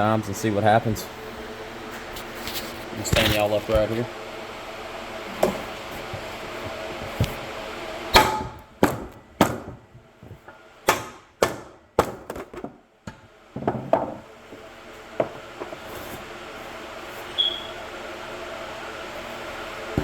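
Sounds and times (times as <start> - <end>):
hammer striking steel: 8.1 - 9.0.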